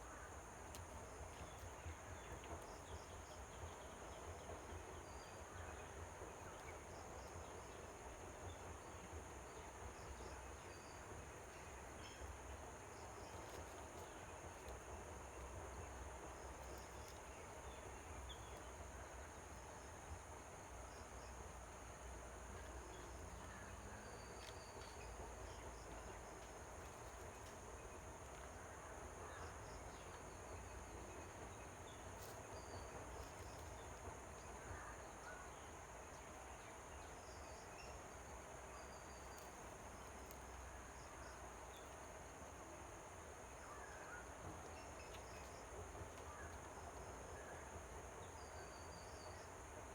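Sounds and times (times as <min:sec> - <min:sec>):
insects droning: 0:14.0 - 0:49.9.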